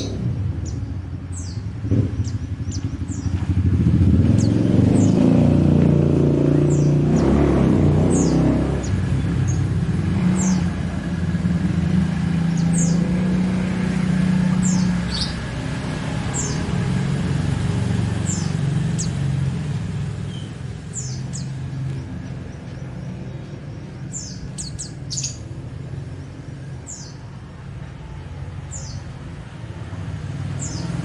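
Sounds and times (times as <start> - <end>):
small bird chirping: 0.0 - 3.6, 4.2 - 5.3, 6.5 - 7.4, 10.3 - 10.8, 12.4 - 13.5, 14.6 - 15.5, 16.2 - 16.8, 18.2 - 19.3, 20.2 - 27.3, 28.7 - 29.1, 30.5 - 31.0.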